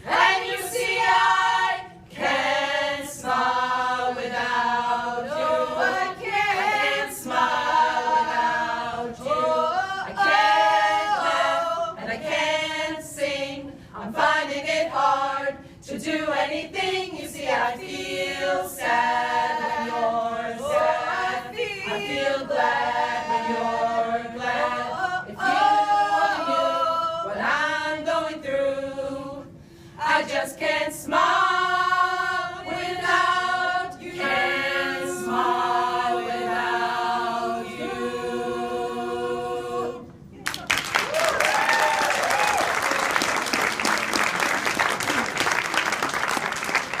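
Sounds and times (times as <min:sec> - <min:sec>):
a cappella choir singing: 0:00.0 - 0:40.4
audience applause: 0:40.4 - 0:47.0
audience cheering: 0:40.6 - 0:47.0.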